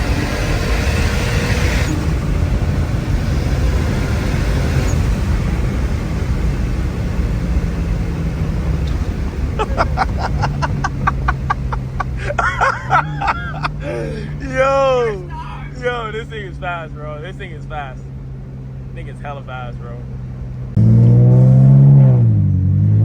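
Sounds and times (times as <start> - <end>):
car engine drone: 0.0 - 23.0
road rumble: 0.0 - 23.0
person laughing: 9.5 - 15.9.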